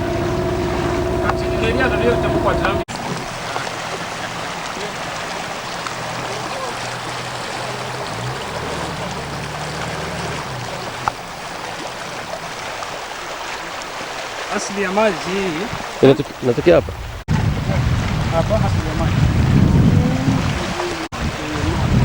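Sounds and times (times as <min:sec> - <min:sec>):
low motor hum: 0:00.0 - 0:13.0, 0:17.2 - 0:22.0
river water rushing: 0:00.0 - 0:16.8, 0:20.2 - 0:22.0.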